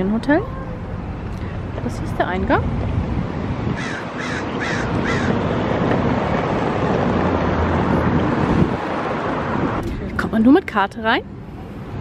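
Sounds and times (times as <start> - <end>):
steady background noise: 0.0 - 12.0
bird harsh calls: 3.8 - 5.4.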